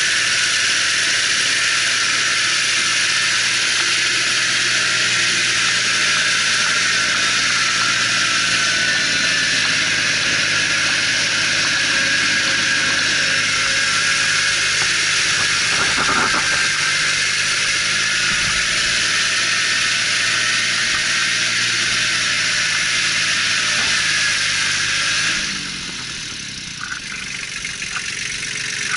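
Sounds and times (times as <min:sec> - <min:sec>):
tractor diesel engine running: 0:00.0 - 0:28.9.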